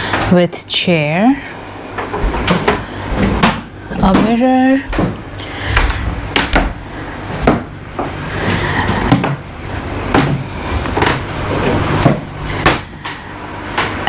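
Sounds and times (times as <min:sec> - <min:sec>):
irregular knocks and thumps: 0:02.0 - 0:09.5, 0:10.1 - 0:13.2.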